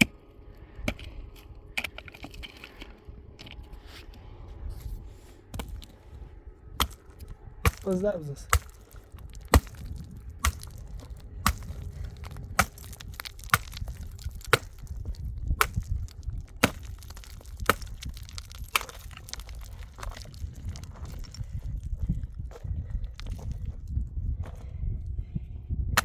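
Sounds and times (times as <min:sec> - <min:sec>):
low rumble: 0:00.0 - 0:26.0
firewood chopping strikes: 0:06.8 - 0:20.4.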